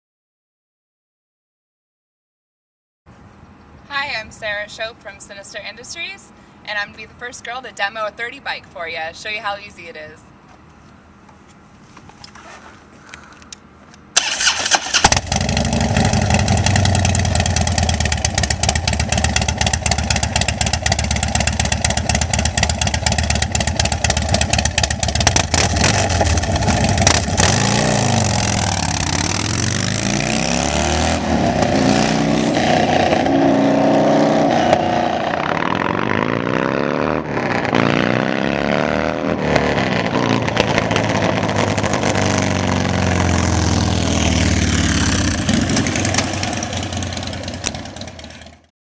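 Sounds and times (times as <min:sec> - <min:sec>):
motorcycle engine revving: 0:14.2 - 0:48.7.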